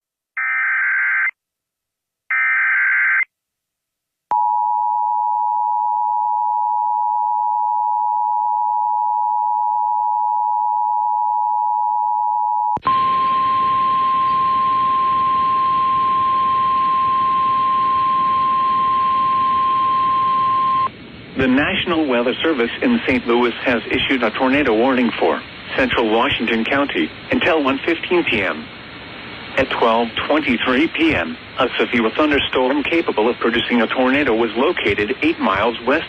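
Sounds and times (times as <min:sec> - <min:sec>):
two-tone attention signal: 0:04.3 - 0:20.9
static hiss: 0:12.8 - 0:36.0.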